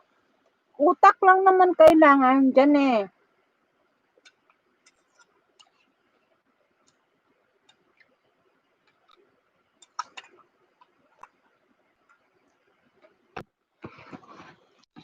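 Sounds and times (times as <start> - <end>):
small clicks from eating: 4.2 - 8.2, 8.8 - 13.5.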